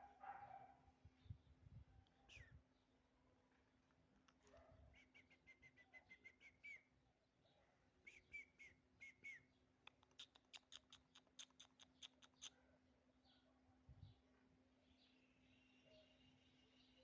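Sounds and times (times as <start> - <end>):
bird chirping: 4.9 - 17.0.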